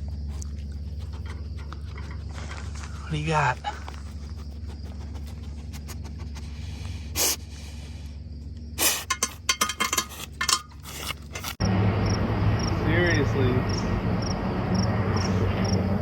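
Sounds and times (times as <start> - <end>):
steady low hum: 0.0 - 16.0
metal tools clinking and rattling: 9.0 - 11.6.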